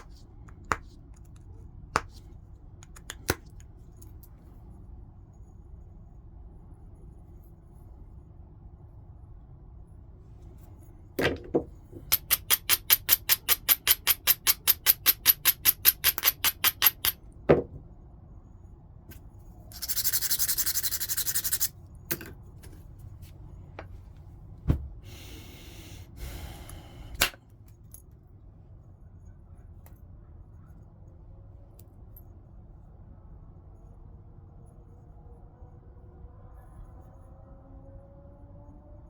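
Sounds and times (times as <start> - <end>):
stone rubbed with abrading stone: 19.7 - 21.7.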